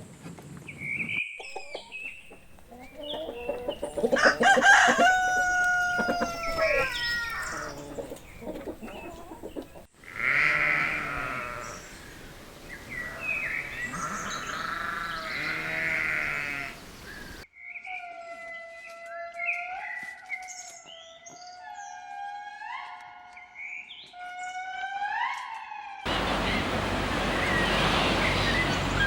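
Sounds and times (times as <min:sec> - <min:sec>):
rooster crowing: 0:01.8 - 0:11.8
thin high animal calls: 0:02.7 - 0:09.1, 0:12.9 - 0:16.8
goat bleating: 0:10.0 - 0:11.9, 0:13.0 - 0:16.8.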